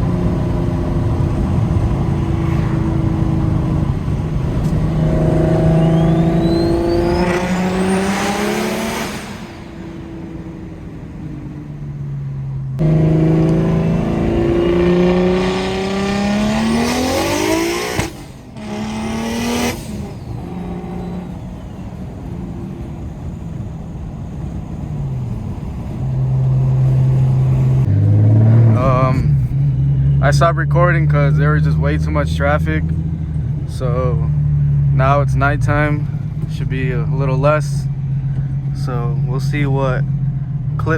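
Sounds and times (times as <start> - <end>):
car engine accelerating: 0.0 - 40.9
turbo whistle: 5.3 - 8.0.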